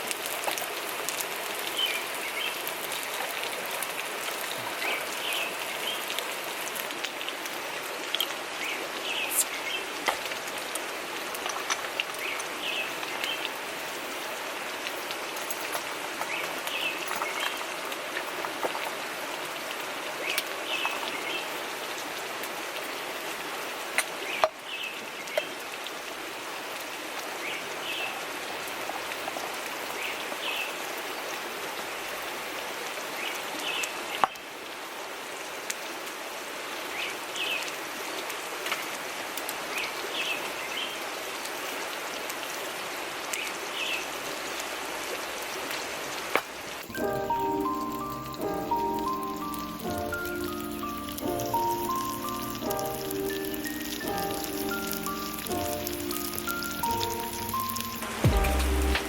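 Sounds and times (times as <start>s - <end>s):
river rushing: 53.6s - 59.0s.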